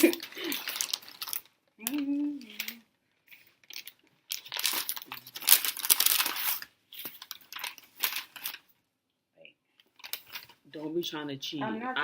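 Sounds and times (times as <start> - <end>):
paper packaging crinkling: 0.0 - 8.7, 9.9 - 10.6.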